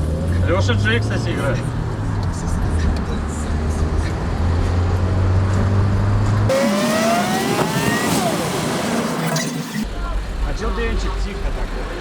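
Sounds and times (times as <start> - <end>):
rising and falling whines: 6.5 - 9.8.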